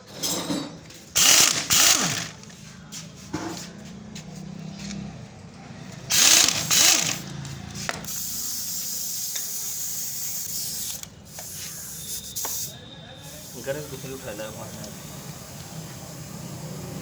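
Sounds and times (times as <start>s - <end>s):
pressurised spray hissing: 8.1s - 17.0s.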